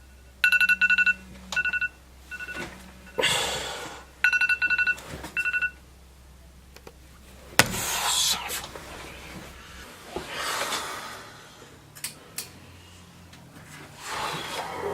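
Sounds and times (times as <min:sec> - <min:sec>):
electronic telephone ringer trilling: 0:00.4 - 0:03.2, 0:04.2 - 0:05.8
rustling noise: 0:07.2 - 0:10.8.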